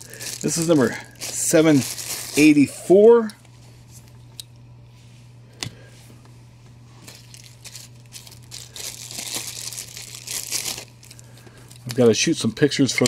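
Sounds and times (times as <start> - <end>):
packing material crinkling and tearing: 0.0 - 2.8, 7.0 - 12.2
steady electrical hum: 0.0 - 13.0.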